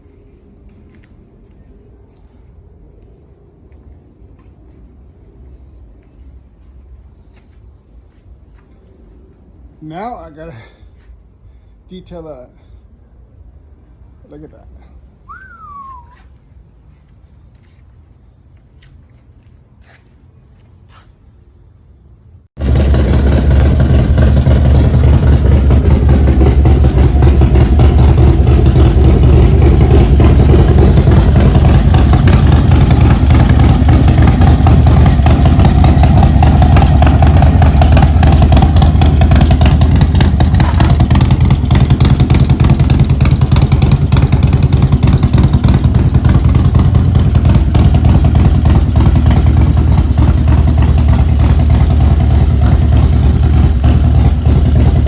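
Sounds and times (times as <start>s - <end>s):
motorcycle engine running loudly: 22.6s - 55.0s.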